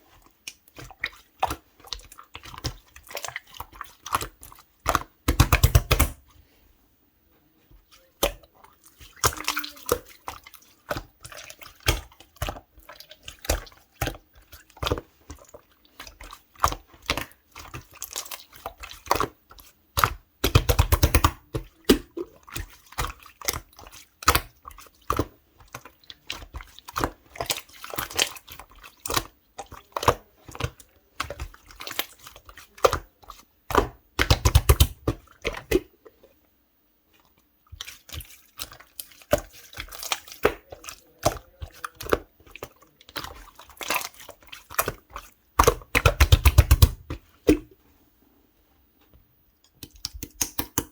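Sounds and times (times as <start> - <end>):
slime squeezed wet clicks: 49.8 - 50.9.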